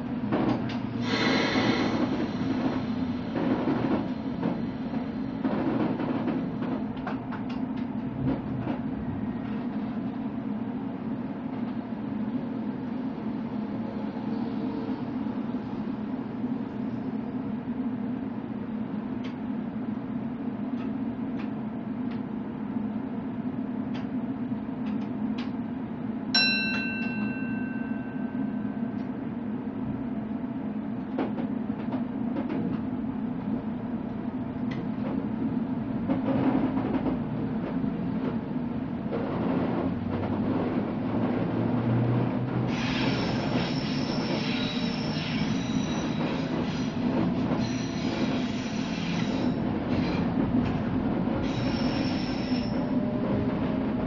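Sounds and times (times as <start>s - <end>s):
train running hum: 0.0s - 54.0s
train wheels squealing: 42.7s - 50.2s, 51.4s - 53.4s.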